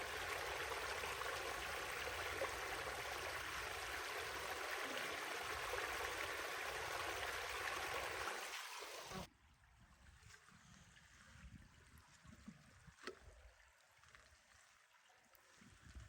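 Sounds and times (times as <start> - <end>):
rushing river water: 0.0 - 9.3.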